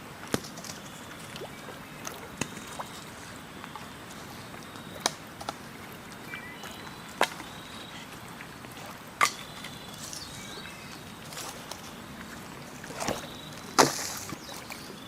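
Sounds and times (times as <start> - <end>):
steady outdoor hiss: 0.0 - 15.0
faint high chirps: 6.3 - 8.1.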